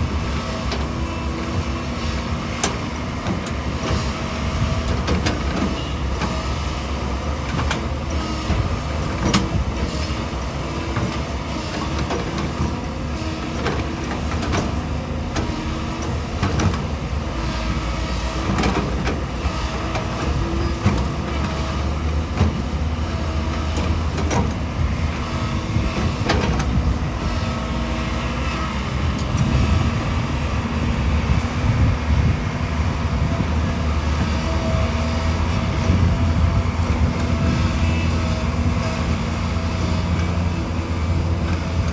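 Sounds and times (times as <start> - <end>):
excavator diesel engine running: 0.0 - 41.9
knocks and clanks of working gear: 23.6 - 24.6, 26.0 - 27.0.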